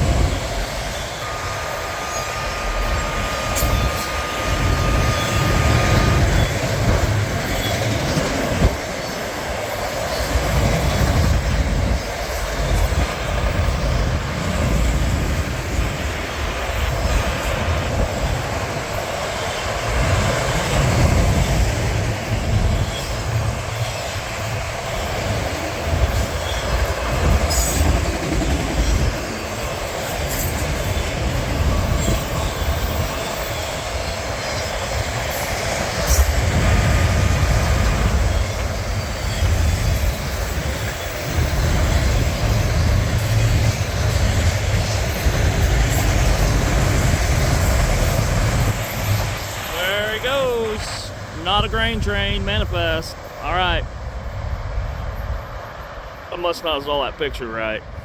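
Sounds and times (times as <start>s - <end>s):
freight train cars rolling on rails: 0.0s - 58.0s
thin high tone: 48.9s - 53.6s.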